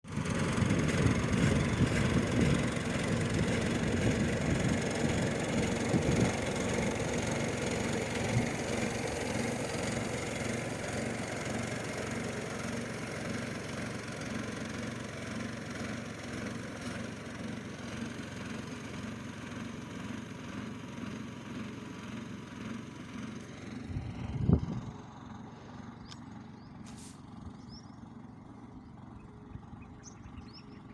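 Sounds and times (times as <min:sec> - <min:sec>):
tractor engine running: 0:00.0 - 0:30.9.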